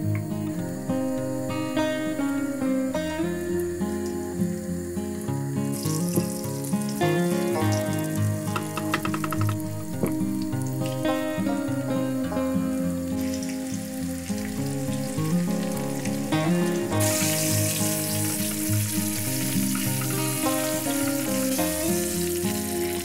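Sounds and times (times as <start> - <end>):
background music with held notes: 0.0 - 23.0
chicken sizzling in oil: 4.8 - 23.0.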